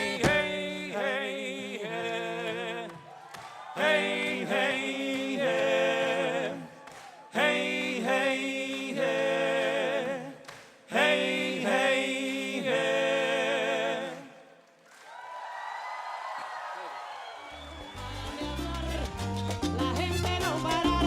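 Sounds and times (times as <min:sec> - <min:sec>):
group singing a cappella: 0:00.0 - 0:14.6.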